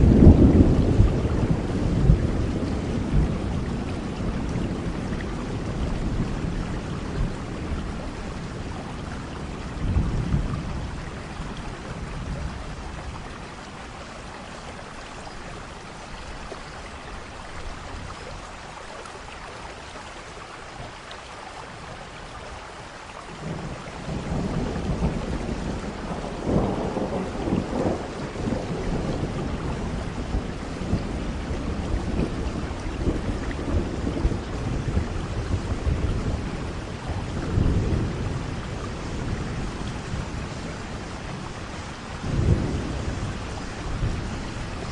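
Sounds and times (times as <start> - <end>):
rolling thunder: 0.0 - 13.4, 23.4 - 44.9
steady rain: 0.0 - 44.9.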